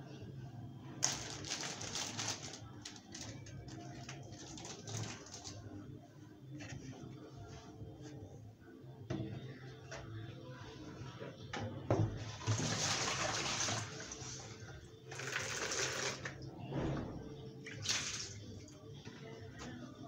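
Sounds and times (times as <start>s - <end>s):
water running: 12.2s - 16.4s.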